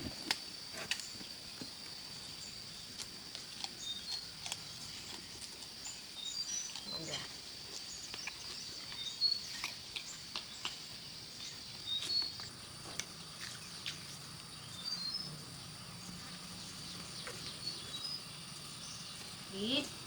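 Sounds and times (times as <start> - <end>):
high insect drone: 0.0 - 20.0
bird chirps: 7.8 - 20.0.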